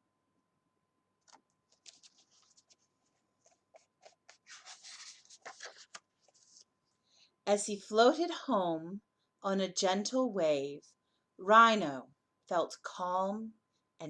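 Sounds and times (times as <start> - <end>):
book page turning: 1.2 - 6.7.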